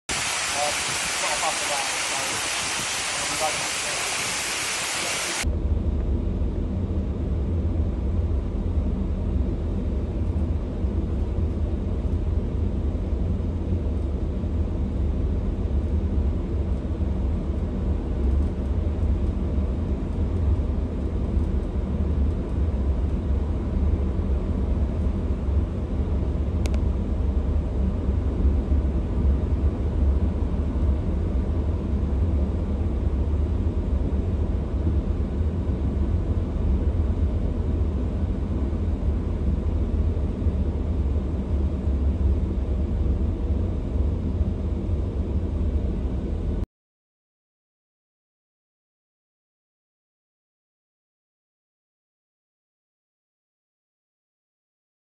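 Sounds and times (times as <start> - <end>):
floodwater gushing: 0.1 - 5.4
deep rumble of slow train: 0.1 - 46.6.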